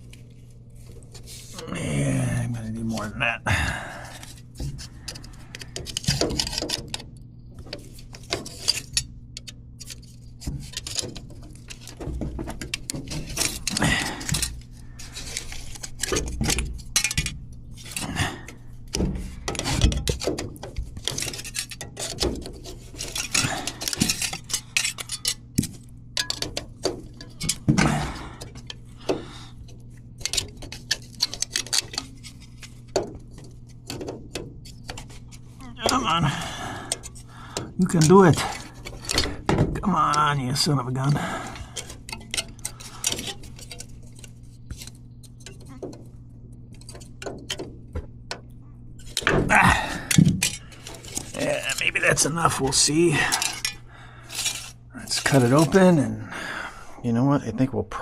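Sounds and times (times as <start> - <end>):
steady low hum: 0.0 - 58.0
metallic clinks and scrapes: 7.8 - 12.0, 21.0 - 28.9, 30.2 - 32.9, 40.8 - 46.0, 49.0 - 55.9.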